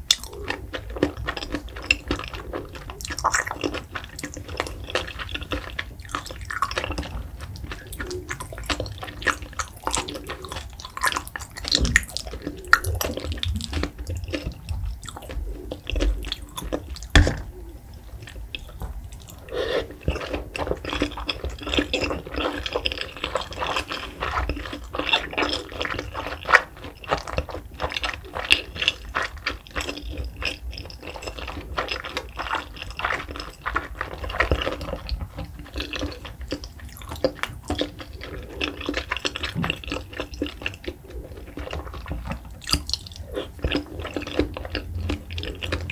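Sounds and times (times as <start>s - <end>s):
wet chewing mouth sounds: 0.0s - 45.9s.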